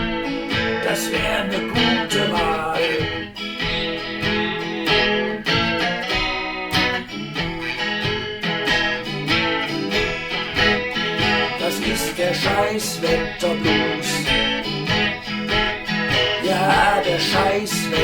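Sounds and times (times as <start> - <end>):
blues guitar playing: 0.0 - 18.0
steady beat: 0.0 - 18.0
person singing: 0.6 - 3.6, 11.1 - 14.7, 16.3 - 18.0.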